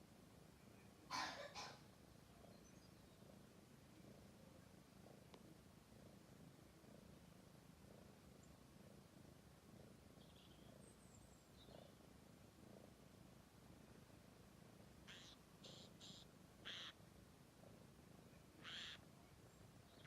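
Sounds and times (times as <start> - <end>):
cat purring: 0.0 - 20.0
faint high bird chirps: 0.6 - 3.3, 10.1 - 12.0, 15.0 - 17.0, 18.3 - 20.0.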